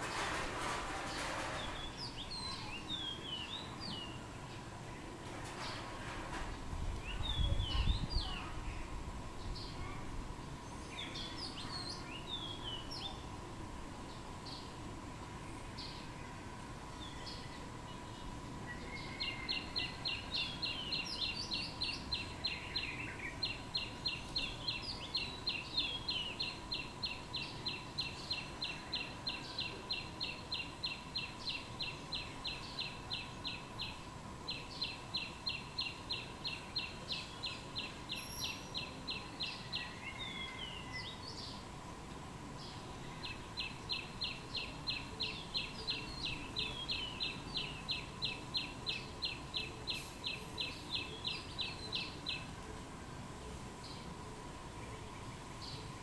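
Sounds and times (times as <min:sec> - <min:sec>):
birds chirping: 0:00.0 - 0:06.2, 0:17.0 - 0:41.7, 0:42.6 - 0:52.6.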